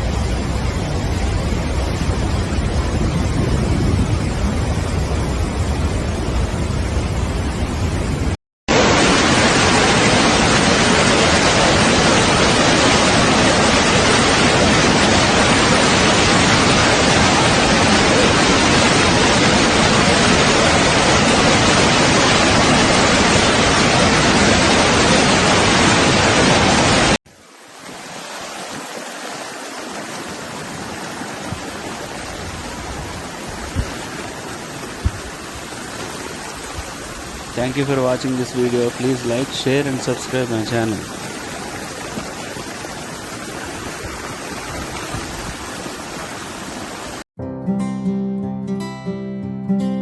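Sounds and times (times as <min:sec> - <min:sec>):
loud steady rushing noise: 0:36.8 - 0:41.8.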